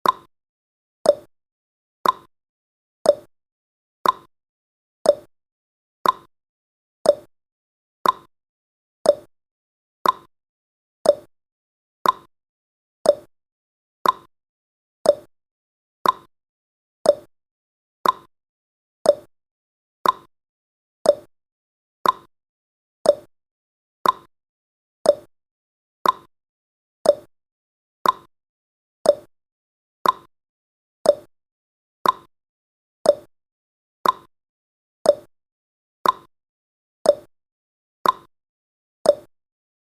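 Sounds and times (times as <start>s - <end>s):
clock ticking: 2.0s - 2.3s, 4.0s - 4.3s, 6.0s - 6.3s, 8.0s - 8.3s, 10.0s - 10.3s, 12.0s - 12.3s, 14.0s - 14.3s, 15.1s - 15.3s, 16.0s - 16.3s, 18.0s - 18.3s, 20.0s - 20.3s, 22.0s - 22.3s, 24.0s - 24.3s, 25.1s - 25.3s, 26.0s - 26.3s, 27.1s - 27.3s, 28.0s - 28.3s, 29.1s - 29.3s, 30.0s - 30.3s, 32.0s - 32.3s, 33.1s - 33.3s, 34.0s - 34.3s, 36.0s - 36.3s, 38.0s - 38.3s, 39.1s - 39.3s.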